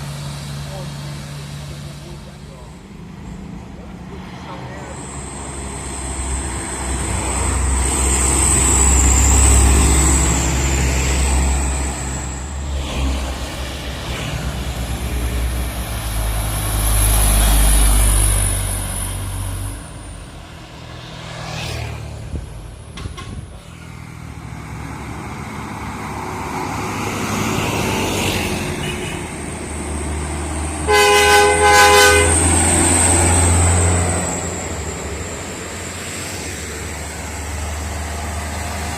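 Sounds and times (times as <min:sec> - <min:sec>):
truck diesel engines labouring: 0:00.0 - 0:38.9
air horn: 0:30.8 - 0:32.5.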